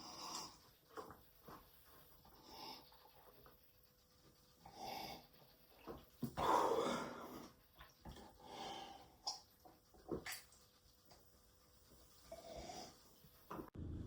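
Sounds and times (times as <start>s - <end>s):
person breathing: 6.4s - 7.6s, 8.3s - 9.2s.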